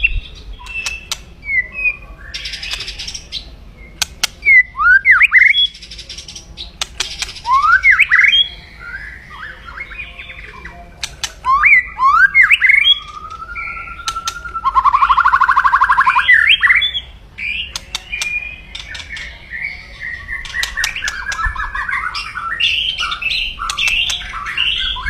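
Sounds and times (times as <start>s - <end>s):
bird whistles and clicks: 0.6s - 1.6s, 3.9s - 8.5s, 11.0s - 19.4s, 20.2s - 25.0s.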